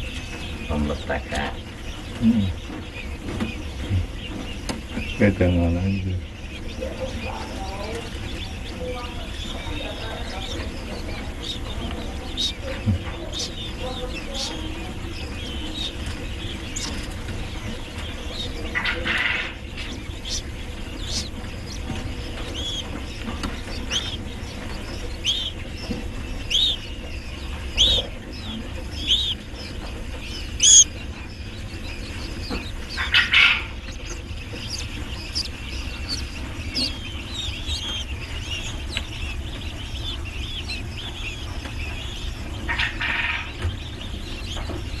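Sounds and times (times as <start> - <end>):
bird calls: 0.0 - 45.0
birds chirping: 0.0 - 45.0
low hum: 0.0 - 45.0.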